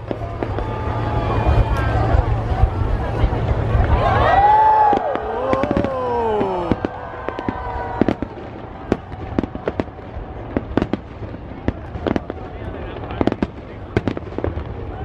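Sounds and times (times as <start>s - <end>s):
fireworks bangs and crackles: 0.0s - 15.0s
low rumble: 0.0s - 15.0s.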